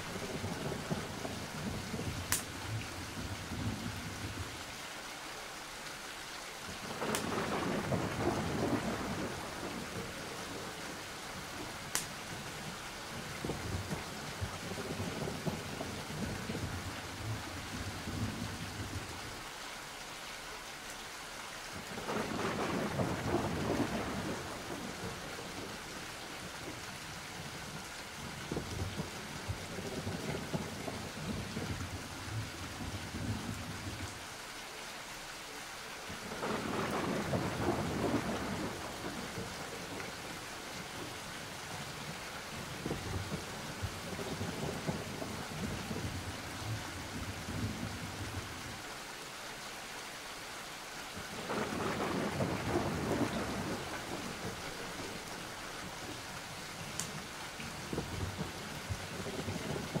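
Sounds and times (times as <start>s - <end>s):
rolling thunder: 0.0s - 2.4s, 6.9s - 10.8s, 22.0s - 25.8s, 36.2s - 40.4s, 51.3s - 55.3s, 57.8s - 60.0s
steady rain: 0.0s - 60.0s.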